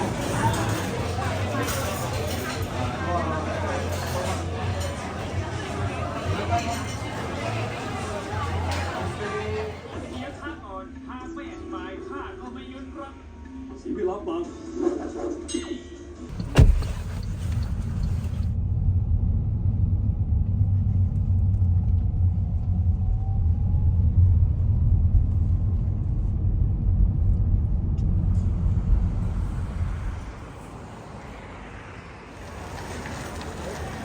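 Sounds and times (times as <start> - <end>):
vehicle rumble: 16.3 - 34.0.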